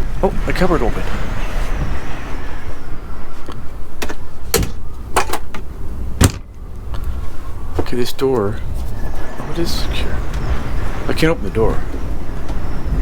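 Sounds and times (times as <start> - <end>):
wind buffeting vehicle: 0.0 - 13.0
cupboard doors and latches knocking: 4.5 - 5.4, 6.2 - 6.6.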